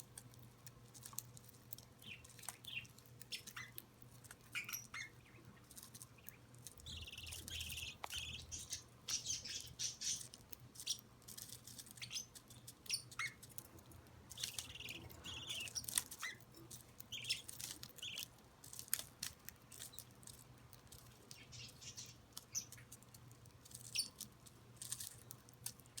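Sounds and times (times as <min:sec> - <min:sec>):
faint low hum: 0:00.0 - 0:26.0
budgerigars chirping and squawking: 0:02.0 - 0:03.8, 0:04.5 - 0:11.0, 0:11.9 - 0:18.3, 0:21.3 - 0:22.9, 0:23.8 - 0:24.2.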